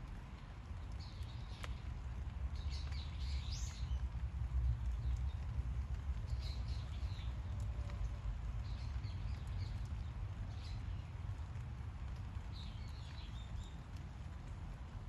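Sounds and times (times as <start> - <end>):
small birds chirping: 0.8 - 7.6, 8.6 - 11.4, 12.4 - 14.0.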